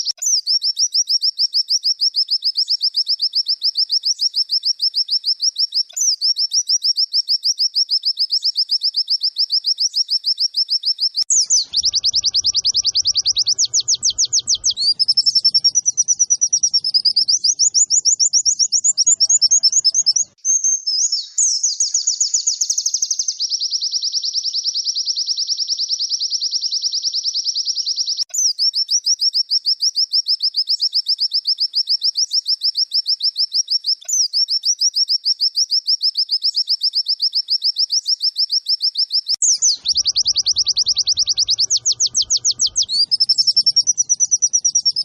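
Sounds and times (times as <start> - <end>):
bird chirping and trilling: 10.0 - 23.7, 39.3 - 45.0.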